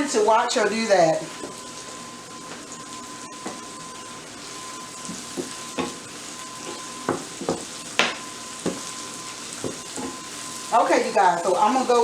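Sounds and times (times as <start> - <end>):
mushrooms sizzling in a pan: 0.0 - 12.0
spoon knocking against a pan: 5.1 - 6.0, 6.6 - 8.9, 9.6 - 10.2.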